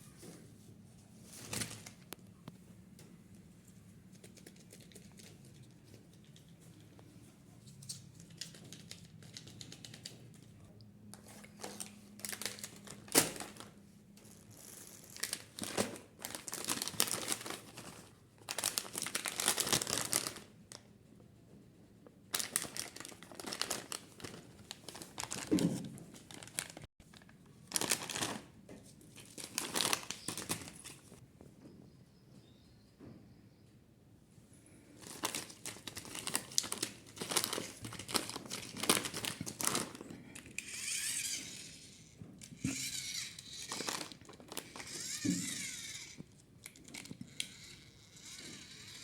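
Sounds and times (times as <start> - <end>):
plastic wrapper crinkling and tearing: 11.4 - 20.5, 22.3 - 28.5, 29.1 - 31.2, 35.0 - 49.0.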